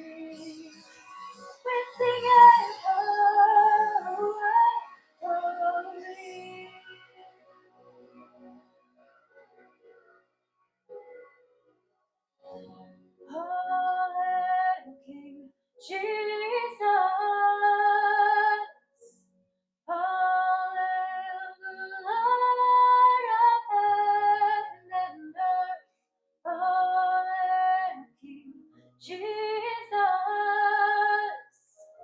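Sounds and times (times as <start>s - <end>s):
woman singing: 0.0s - 0.8s, 1.7s - 6.9s, 13.3s - 18.7s, 19.9s - 25.8s, 26.5s - 31.5s.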